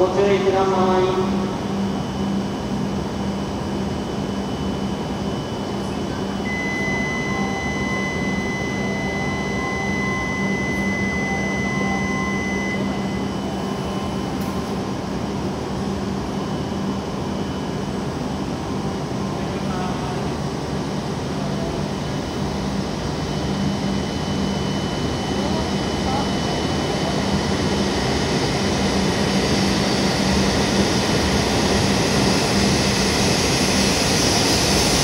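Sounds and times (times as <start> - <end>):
platform ambience: 0.0 - 35.0
train humming: 4.8 - 35.0
high electronic tone: 6.4 - 14.8.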